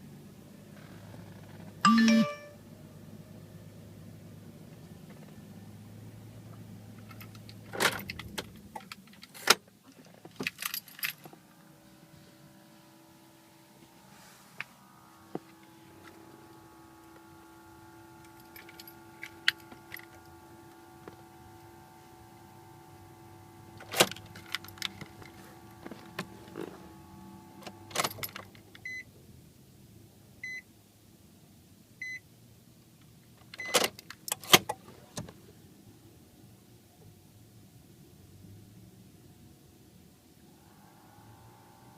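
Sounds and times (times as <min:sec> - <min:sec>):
short high beeps: 0:01.9 - 0:02.6
low electrical hum: 0:05.8 - 0:41.9
keys jangling: 0:10.4 - 0:11.3.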